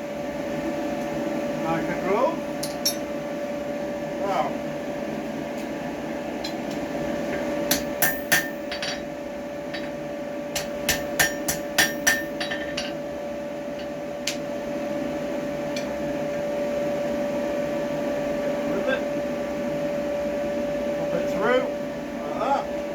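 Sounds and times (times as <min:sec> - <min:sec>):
hammer striking steel on anvil: 0:02.6 - 0:03.1, 0:07.7 - 0:09.1, 0:09.7 - 0:13.0.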